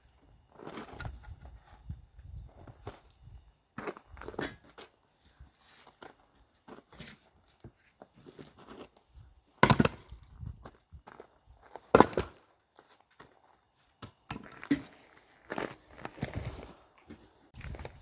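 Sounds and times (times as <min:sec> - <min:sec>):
axe striking wood: 0:09.6 - 0:10.1, 0:11.9 - 0:12.4.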